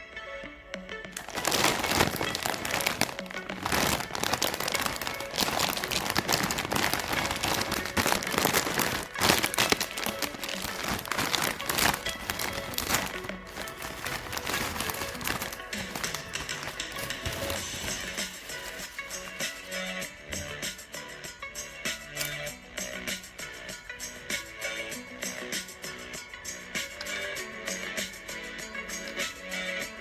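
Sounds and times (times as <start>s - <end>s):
quiet background music: 0.0s - 30.0s
plastic wrappers crinkling and tearing: 1.1s - 20.0s.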